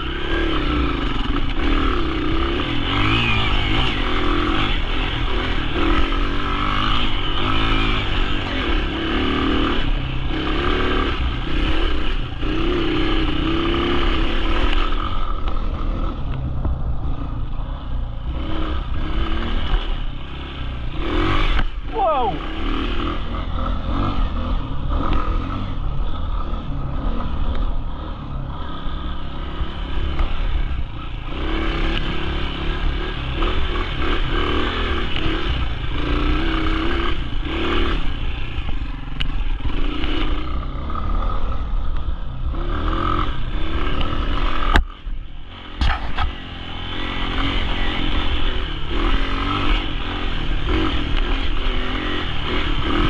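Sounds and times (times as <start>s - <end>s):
dirt bike engine revving: 0.0s - 53.0s
sharp click: 45.8s - 46.4s
rattling and scraping: 45.8s - 46.5s.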